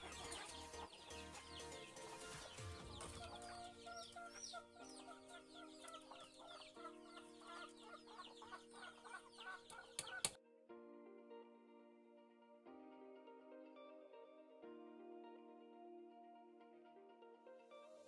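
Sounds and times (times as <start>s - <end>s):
chickens chirping: 0.0s - 10.4s
quiet background music: 0.0s - 18.0s.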